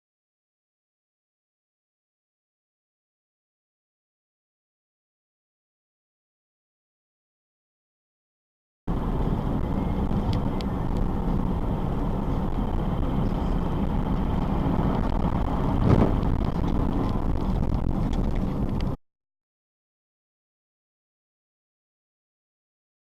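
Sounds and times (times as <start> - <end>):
car engine and road noise: 8.9 - 19.0
loud thump: 15.8 - 16.2.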